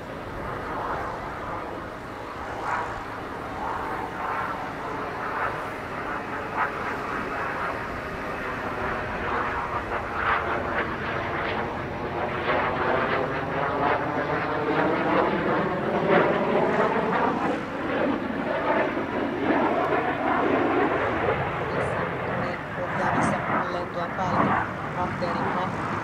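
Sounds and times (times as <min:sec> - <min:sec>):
jet engine roaring: 0:00.0 - 0:26.0.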